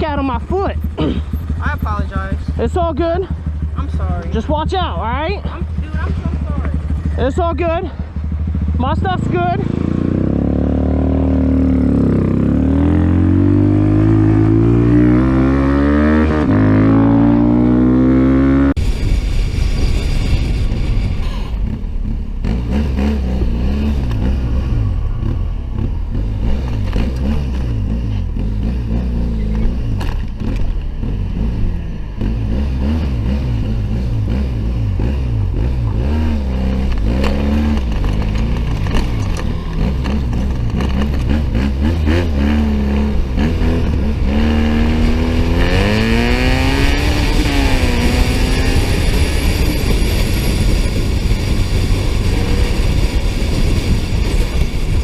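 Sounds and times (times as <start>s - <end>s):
motorcycle engine revving: 0.0s - 55.0s
road noise: 0.0s - 55.0s
wind noise: 11.6s - 55.0s.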